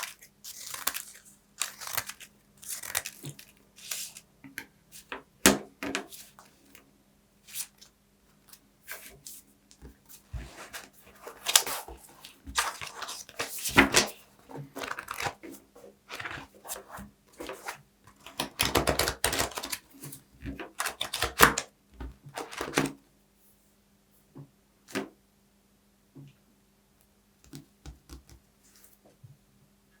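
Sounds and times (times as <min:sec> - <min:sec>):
paper crackling and tearing: 0:00.0 - 0:04.2, 0:10.4 - 0:15.5, 0:16.1 - 0:21.6.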